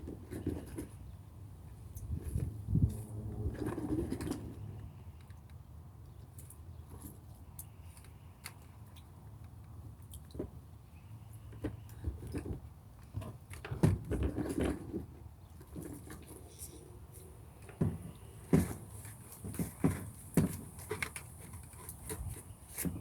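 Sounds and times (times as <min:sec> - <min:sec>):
clicks and knocks of handling: 0:17.6 - 0:23.0.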